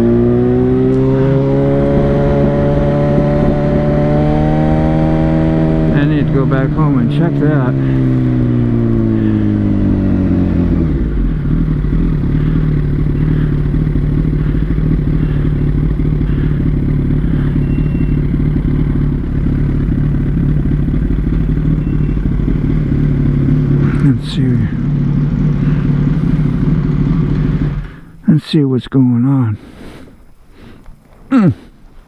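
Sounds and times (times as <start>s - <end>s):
motorcycle engine: 0.0s - 28.5s.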